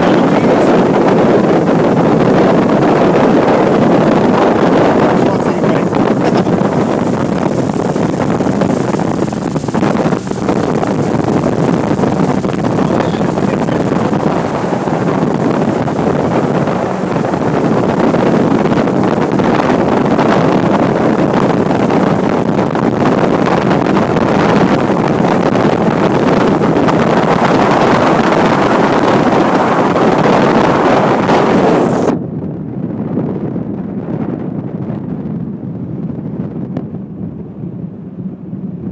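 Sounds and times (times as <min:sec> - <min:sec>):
motorboat engine: 0:00.0 - 0:32.1
water noise: 0:00.0 - 0:32.2
wind buffeting microphone: 0:00.0 - 0:38.9.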